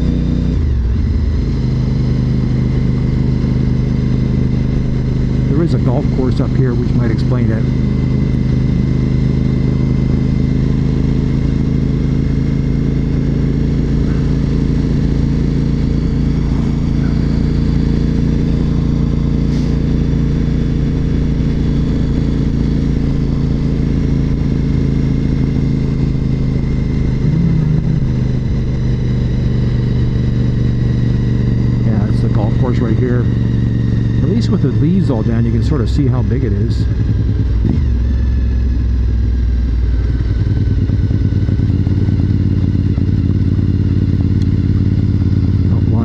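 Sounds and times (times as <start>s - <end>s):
motorcycle engine cruising: 0.0s - 46.0s.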